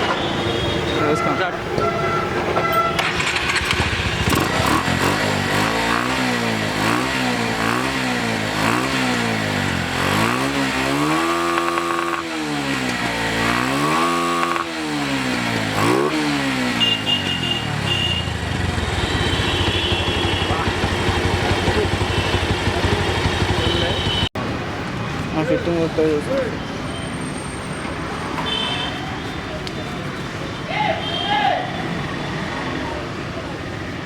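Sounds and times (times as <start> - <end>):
motorcycle engine revving: 3.0 - 24.4.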